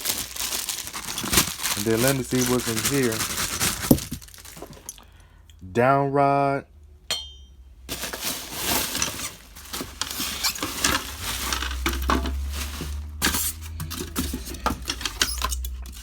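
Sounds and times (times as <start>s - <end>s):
packaging rustling: 0.0s - 5.0s, 7.9s - 16.0s
fan parts clinking and knocking: 7.1s - 16.0s.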